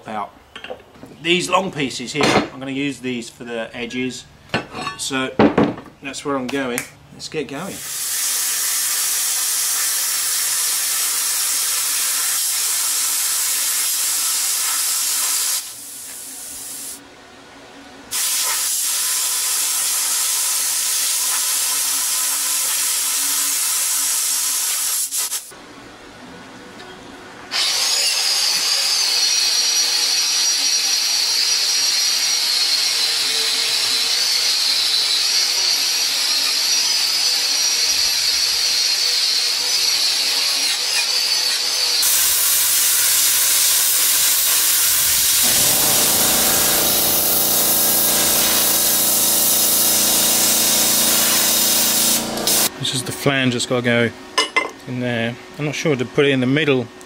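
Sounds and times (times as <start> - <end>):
power tool hissing on steel: 7.8 - 17.0, 18.1 - 25.5, 27.6 - 52.7
tool with high wavering whine: 27.5 - 52.7.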